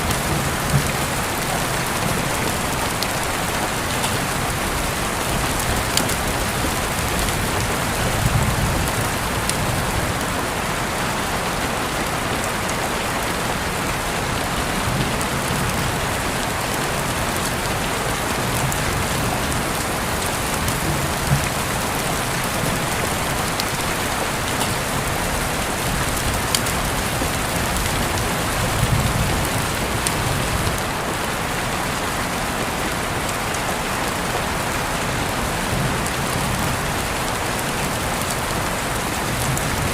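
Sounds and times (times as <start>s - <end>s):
raindrops ticking: 0.0s - 10.4s, 13.9s - 31.2s
steady rain hissing: 0.0s - 39.9s.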